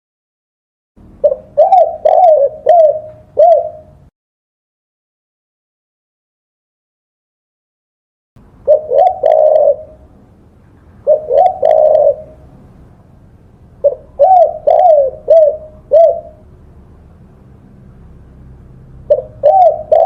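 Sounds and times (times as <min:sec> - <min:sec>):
dove cooing: 0:01.2 - 0:04.1, 0:08.6 - 0:10.1, 0:11.0 - 0:12.6, 0:13.8 - 0:16.5, 0:19.0 - 0:20.0.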